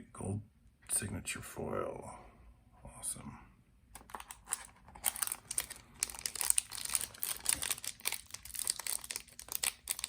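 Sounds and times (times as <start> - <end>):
card packs rustling: 4.0 - 10.0.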